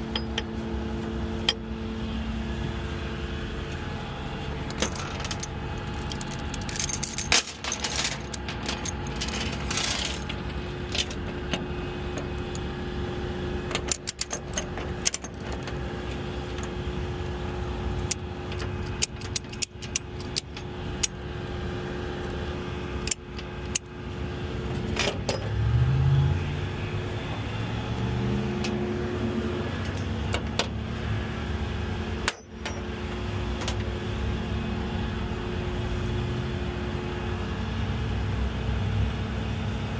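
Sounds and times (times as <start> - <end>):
truck engine idling: 0.0 - 25.3, 26.3 - 35.8
metallic clinks and rattles: 4.7 - 11.2, 13.7 - 15.4.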